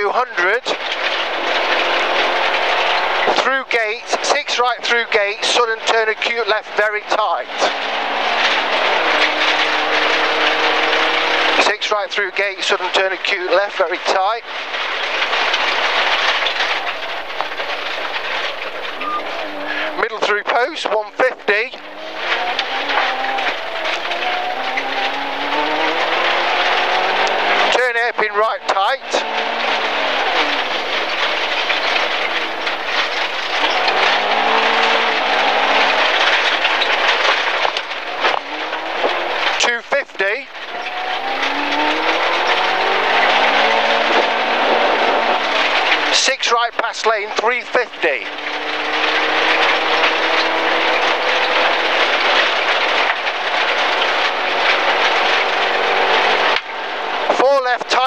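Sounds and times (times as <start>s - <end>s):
rally car engine revving: 0.0s - 58.0s
gravel hissing under tyres: 21.0s - 39.6s, 47.0s - 57.3s
stones striking car: 28.8s - 39.8s.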